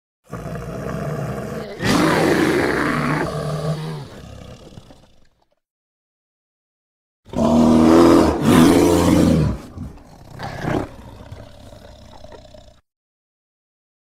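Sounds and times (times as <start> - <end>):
bear roaring: 0.3 - 5.3, 7.3 - 12.8.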